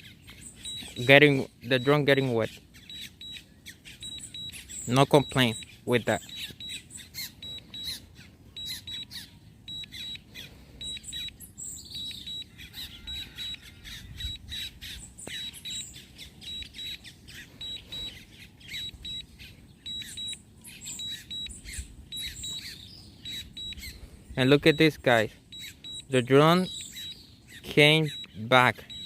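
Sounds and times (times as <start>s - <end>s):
birds chirping: 0.0s - 29.0s
short high beeps: 0.6s - 2.1s, 4.0s - 6.8s, 7.4s - 8.0s, 17.6s - 18.2s, 18.8s - 19.3s, 19.9s - 27.2s, 28.0s - 29.0s.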